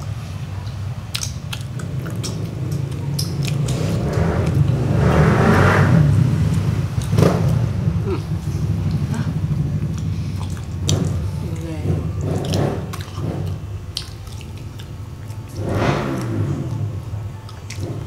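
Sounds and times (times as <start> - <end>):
steady low rumble: 0.0 - 18.0
person chewing crispy food: 0.6 - 4.6, 12.2 - 18.0.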